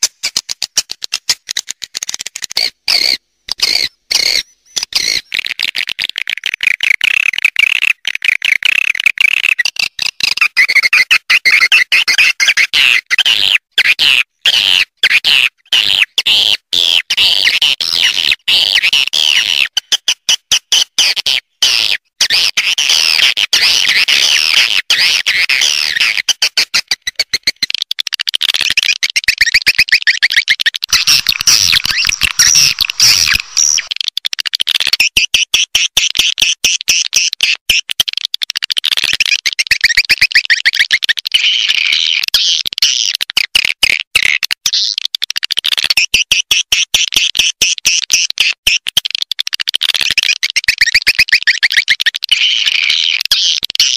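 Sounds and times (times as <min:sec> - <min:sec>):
swiftlets twittering chirps: 0:02.9 - 0:05.4, 0:30.9 - 0:33.9.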